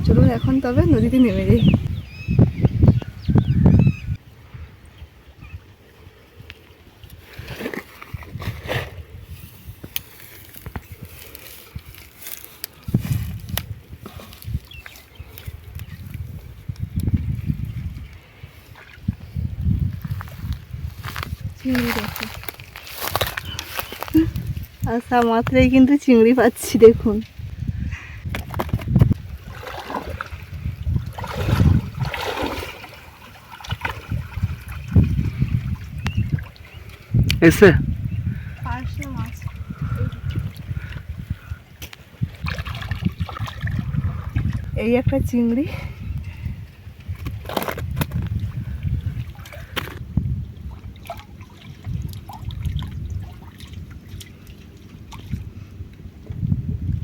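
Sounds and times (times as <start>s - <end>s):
river water trickling: 5.2s - 27.6s, 29.2s - 56.2s
river water splashing: 29.2s - 37.1s, 42.3s - 44.6s, 50.6s - 55.7s.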